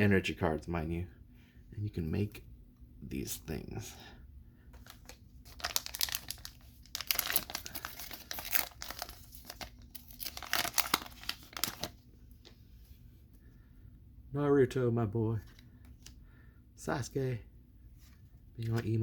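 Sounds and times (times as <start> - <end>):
foil wrapper crinkling and tearing: 4.8 - 12.0.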